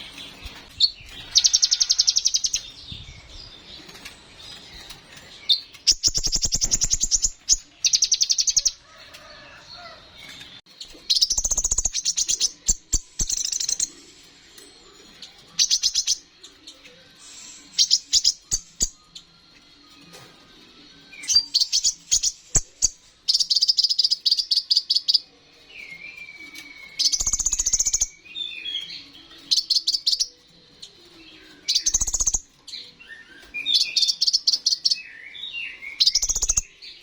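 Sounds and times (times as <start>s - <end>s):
bird singing rapid high trills: 5.5s - 8.8s, 33.1s - 36.8s.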